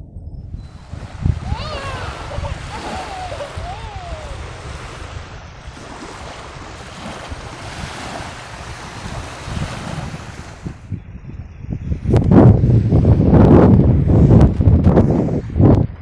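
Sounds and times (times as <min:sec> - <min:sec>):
wind buffeting microphone: 0:00.0 - 0:16.0
surf: 0:00.6 - 0:11.0.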